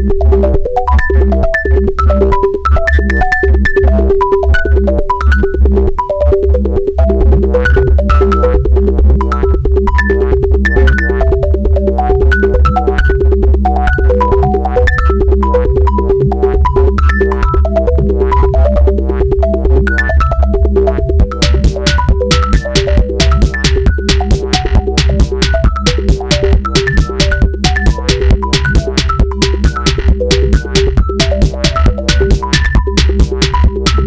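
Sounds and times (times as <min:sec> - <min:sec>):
drum machine ticks: 0:10.6 - 0:13.3, 0:20.1 - 0:34.0
deep synth bass: 0:17.8 - 0:34.0
synthesizer sequenced notes: 0:19.9 - 0:34.0.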